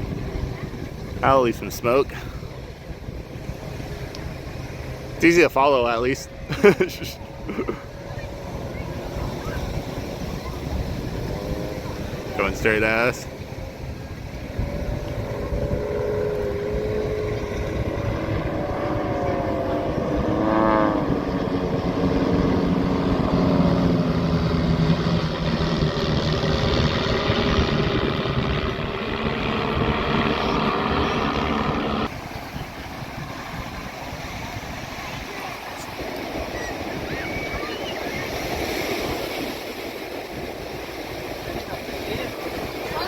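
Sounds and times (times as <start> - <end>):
aircraft engine drone: 0.0 - 43.0
rushing roar: 7.9 - 39.6.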